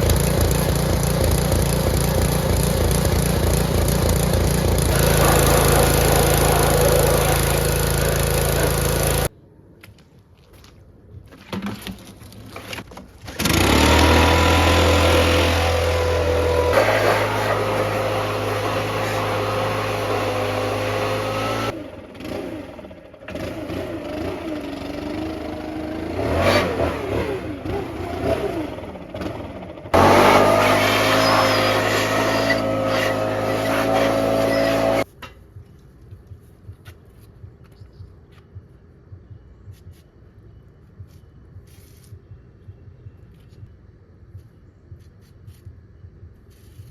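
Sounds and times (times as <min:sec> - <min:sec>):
power tool motor running: 0:00.0 - 0:09.3, 0:13.4 - 0:22.4, 0:30.0 - 0:35.0.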